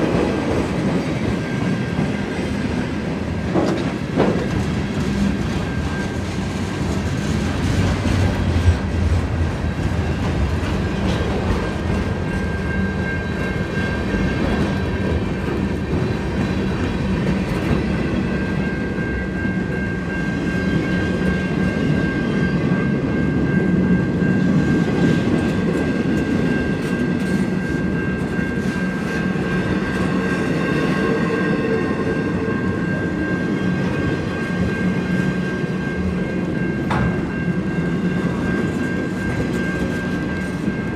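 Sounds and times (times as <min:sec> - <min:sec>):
train wheels clacking over rail joints: 0:03.4 - 0:12.6.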